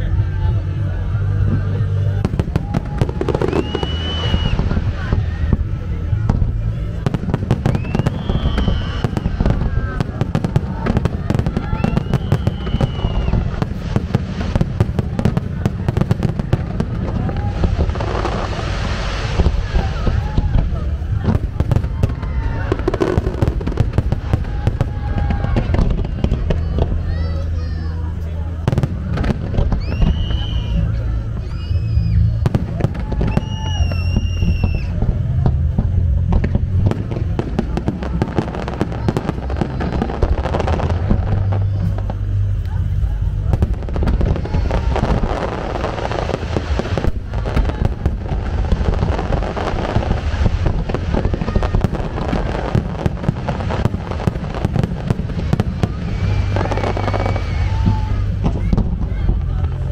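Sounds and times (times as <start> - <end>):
low booming: 0.0 - 59.9
low rumble: 0.0 - 59.9
crackling hiss: 0.9 - 59.9
high whistling tone: 3.4 - 4.7, 7.7 - 9.4, 11.6 - 13.5, 33.2 - 35.0.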